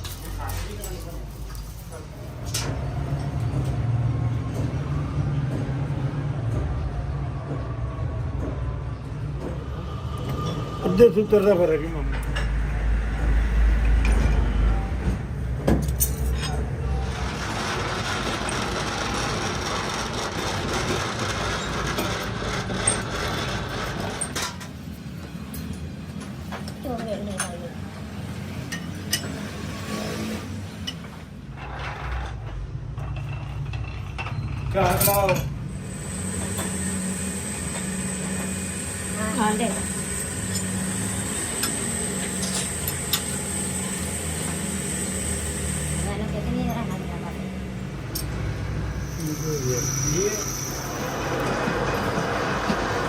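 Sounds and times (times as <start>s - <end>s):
workshop machinery humming and whining: 0.0s - 53.0s
machine tool cutting metal: 16.0s - 24.6s, 35.0s - 47.1s, 48.1s - 53.0s.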